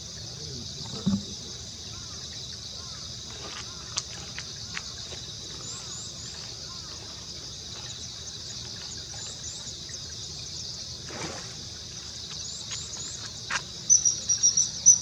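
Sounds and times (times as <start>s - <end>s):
insect chorus: 0.0s - 15.0s
short insect chirps: 8.8s - 15.0s.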